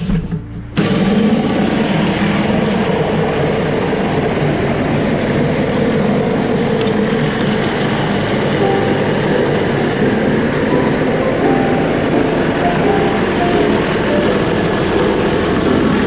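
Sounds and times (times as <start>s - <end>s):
pressure washer engine drone: 8.4s - 16.0s.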